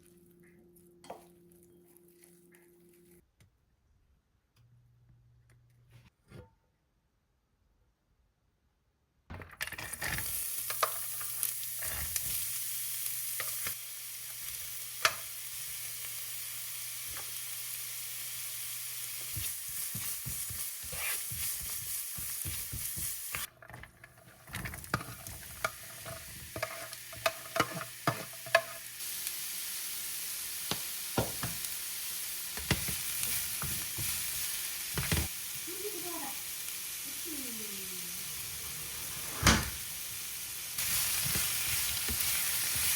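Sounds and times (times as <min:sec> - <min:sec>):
food sizzling in frying pan: 0:09.7 - 0:23.5, 0:24.1 - 0:42.9.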